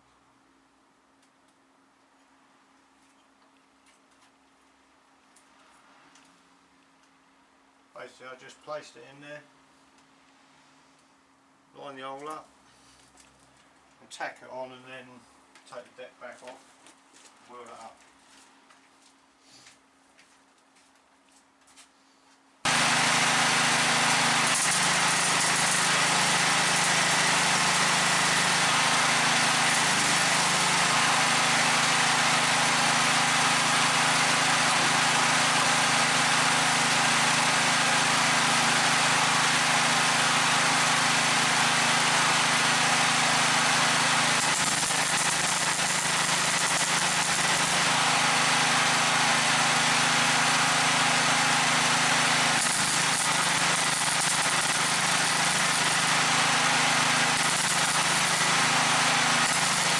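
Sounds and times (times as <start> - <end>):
motor machine humming: 22.7 - 59.9.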